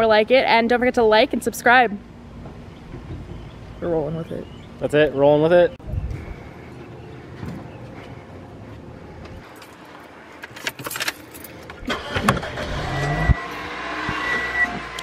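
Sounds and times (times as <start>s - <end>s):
keys jangling: 10.4s - 11.7s
car engine starting and running: 10.6s - 15.0s.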